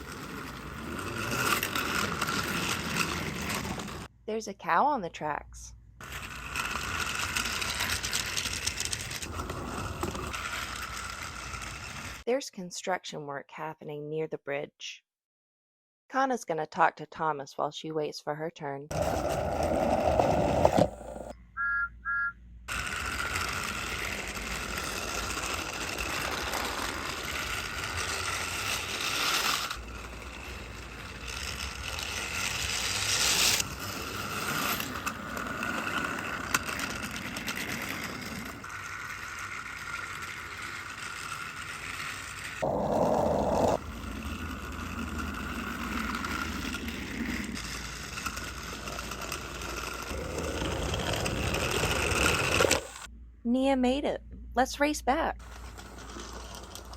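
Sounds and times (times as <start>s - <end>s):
toy train motor whirring: 0.0s - 4.1s, 6.0s - 12.2s, 22.7s - 53.1s, 55.4s - 56.9s
short beeps: 21.6s - 22.4s.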